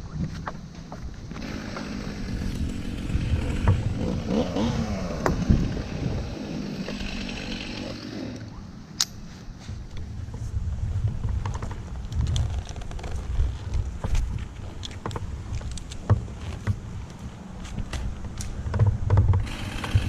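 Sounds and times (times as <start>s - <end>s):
chainsaw engine revving: 1.3s - 8.6s, 19.4s - 20.0s
sharp click: 8.4s - 9.3s.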